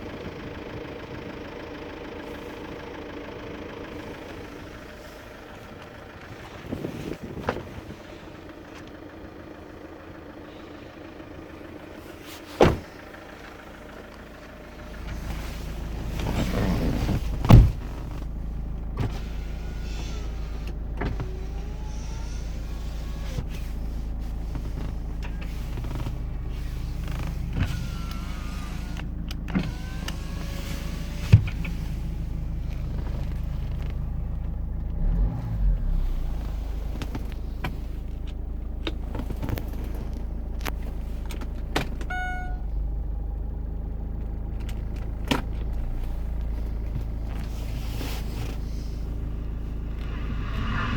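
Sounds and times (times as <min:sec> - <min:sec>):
car engine starting and idling: 0:00.0 - 0:50.9
power window motors whining: 0:24.5 - 0:31.9.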